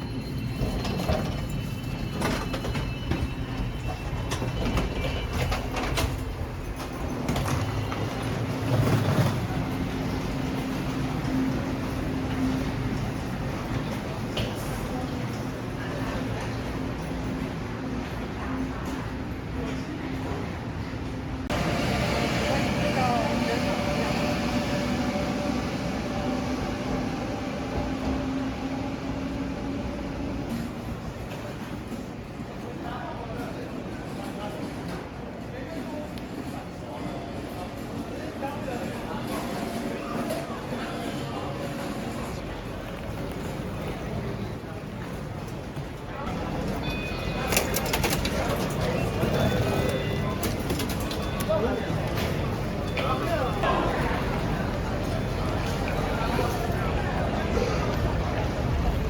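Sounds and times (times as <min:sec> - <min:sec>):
electric train rumbling: 0:00.0 - 0:35.5, 0:36.2 - 0:59.0
train rumbling hiss: 0:21.4 - 0:31.2.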